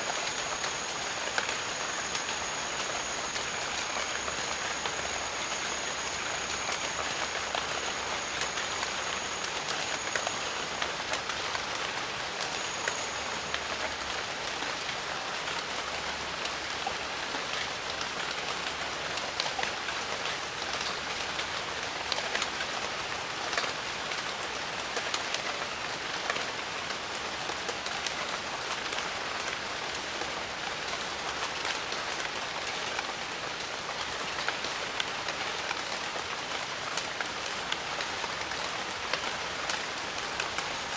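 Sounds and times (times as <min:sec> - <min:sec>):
thin high steady tone: 0:00.0 - 0:14.2, 0:33.6 - 0:40.9
steady rain with dripping drops: 0:00.0 - 0:40.9.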